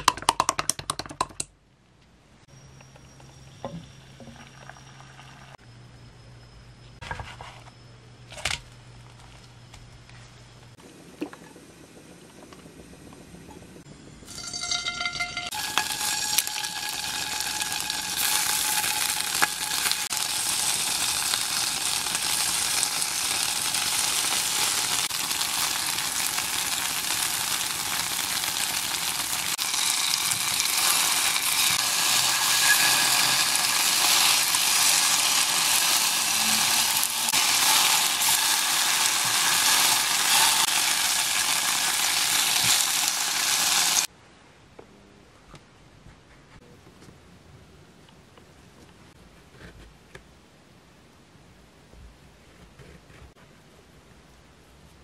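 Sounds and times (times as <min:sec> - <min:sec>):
tofu frying in hot oil: 0:14.3 - 0:44.1.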